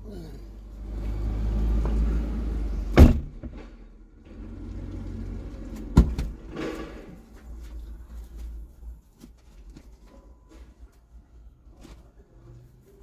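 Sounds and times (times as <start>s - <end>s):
vehicle engine rumbling: 0.0s - 9.7s
door slam: 2.9s - 3.7s, 6.0s - 6.6s
scraping rustle: 4.6s - 11.1s.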